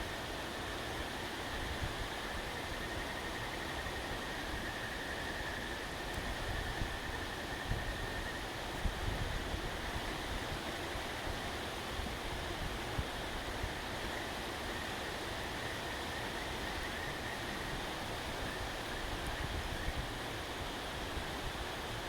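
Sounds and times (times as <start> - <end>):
outdoor hiss: 0.0 - 22.0
wind rumble on microphone: 1.4 - 22.0
faint ticks: 6.1 - 6.3.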